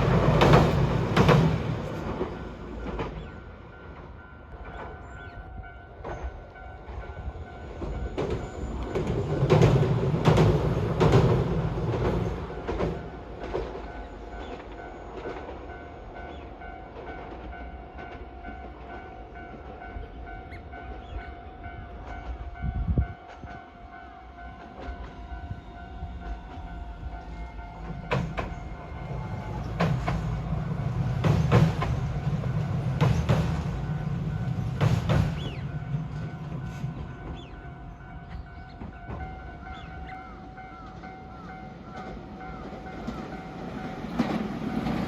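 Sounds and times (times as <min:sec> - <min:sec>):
wheels clacking over rail joints: 0:00.0 - 0:05.3, 0:06.0 - 0:20.2, 0:24.6 - 0:45.0
train rumbling past: 0:00.0 - 0:45.0.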